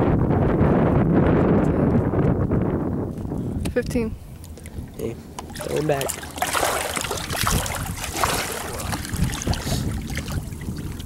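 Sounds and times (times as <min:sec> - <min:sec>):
wind rustling on microphone: 0:00.0 - 0:11.0
water sloshing around kayak: 0:04.3 - 0:11.0.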